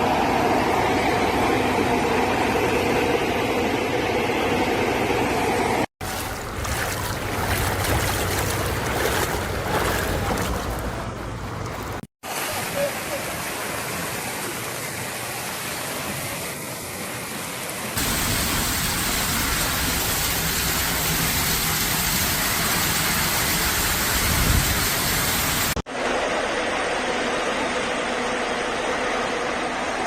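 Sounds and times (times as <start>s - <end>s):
heavy rain rushing: 18.0s - 25.8s.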